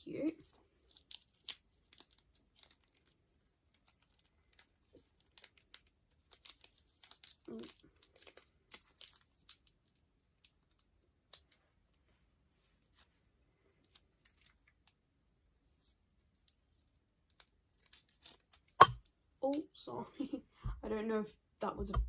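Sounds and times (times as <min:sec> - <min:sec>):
packaging crinkling and tearing: 0:00.2 - 0:10.9, 0:17.3 - 0:18.8.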